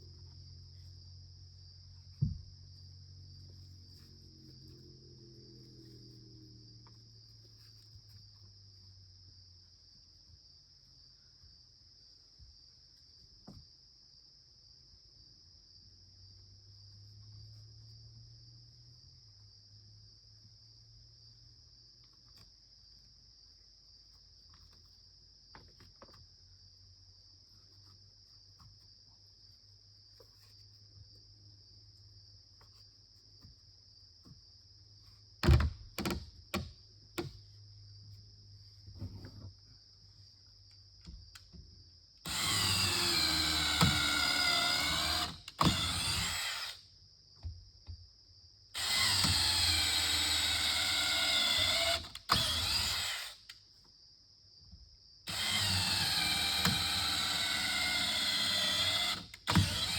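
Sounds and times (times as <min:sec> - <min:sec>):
power drill running: 0:42.2 - 0:46.8, 0:48.8 - 0:53.5, 0:55.3 - 0:59.9
high insect buzz: 0:42.2 - 0:47.0, 0:48.8 - 0:53.6, 0:55.2 - 0:59.9.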